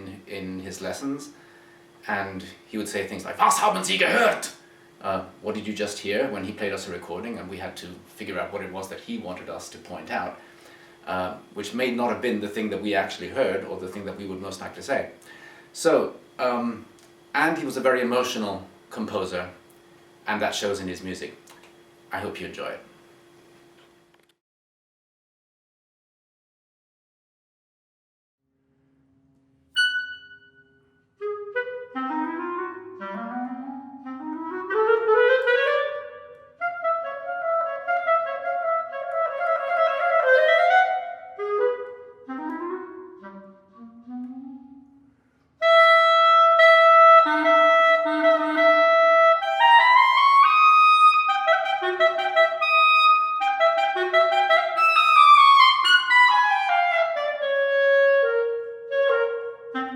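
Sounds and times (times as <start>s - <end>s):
solo clarinet playing: 29.8s - 59.9s.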